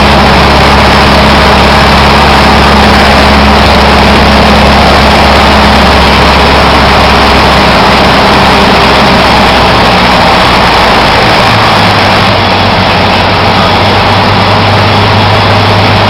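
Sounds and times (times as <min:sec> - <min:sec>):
airplane engine and propeller: 0:00.0 - 0:16.0.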